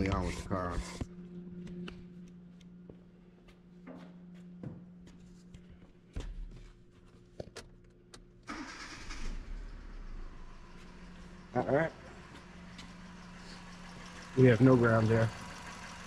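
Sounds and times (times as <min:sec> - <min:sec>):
car engine starting and running: 0:08.5 - 0:16.0.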